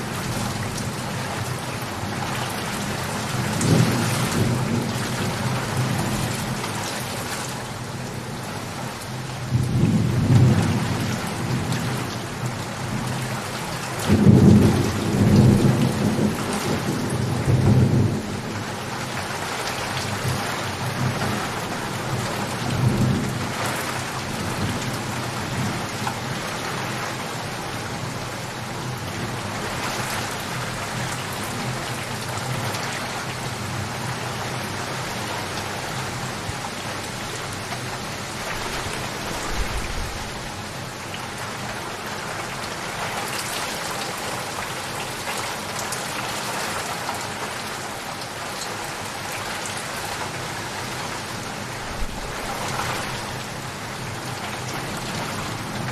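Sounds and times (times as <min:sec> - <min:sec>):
steady rain falling: 0:00.0 - 0:55.9
thunder rumbling: 0:38.4 - 0:40.8, 0:51.9 - 0:53.7.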